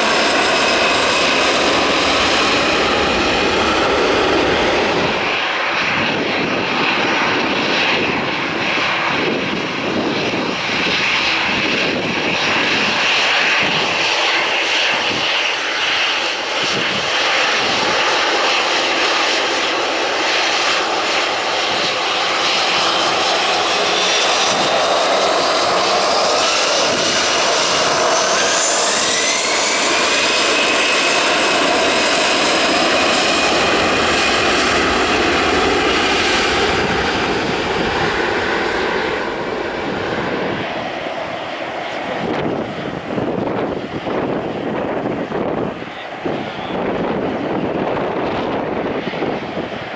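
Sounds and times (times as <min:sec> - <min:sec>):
jet engines roaring at take-off: 0:00.0 - 0:49.9
whining tone rising in pitch: 0:23.9 - 0:31.8.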